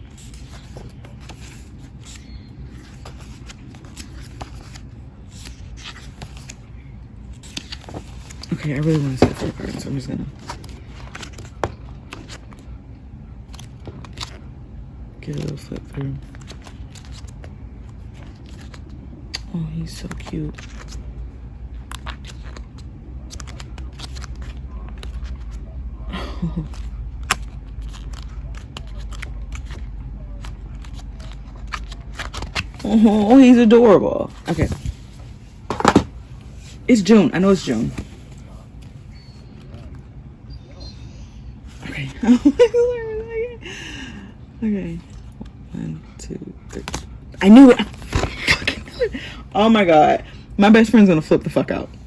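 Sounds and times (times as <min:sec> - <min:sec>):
paper pages rustling: 0:00.0 - 0:12.8, 0:13.5 - 0:14.5, 0:15.3 - 0:19.0, 0:20.0 - 0:21.1, 0:21.7 - 0:25.6, 0:26.4 - 0:40.0, 0:46.7 - 0:49.8.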